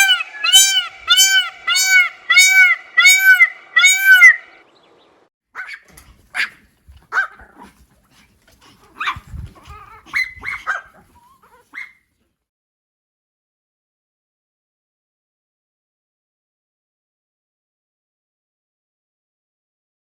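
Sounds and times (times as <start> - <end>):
loud honking call: 0.0 - 4.6
dog barking: 5.6 - 7.8, 8.6 - 12.0.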